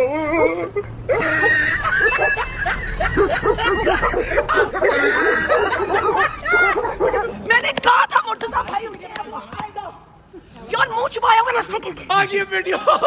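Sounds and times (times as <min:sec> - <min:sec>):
people laughing and snickering: 0:00.0 - 0:07.5.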